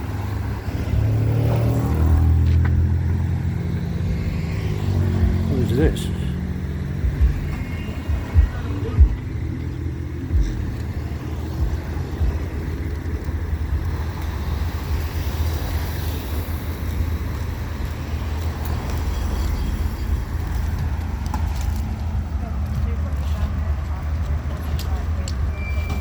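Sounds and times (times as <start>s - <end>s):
low rumble of vehicle engines: 0.0s - 26.0s
passing vehicle hiss: 14.4s - 20.7s.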